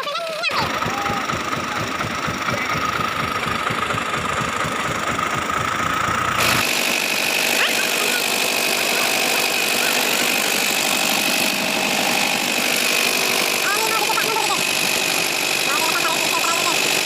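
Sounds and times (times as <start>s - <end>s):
vehicle engine low pulse: 0.6s - 6.6s.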